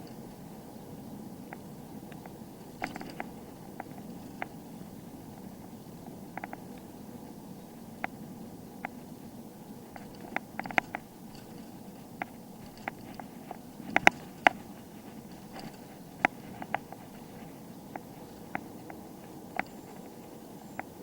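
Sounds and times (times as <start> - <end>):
low steady rumble: 0.0 - 21.0
bicycle parts rattling and clicking: 2.2 - 4.9, 10.0 - 20.0.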